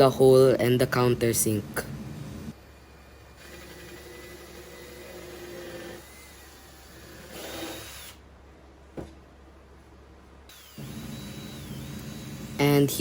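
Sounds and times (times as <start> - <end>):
power drill boring wood: 2.8 - 8.2, 10.5 - 12.6.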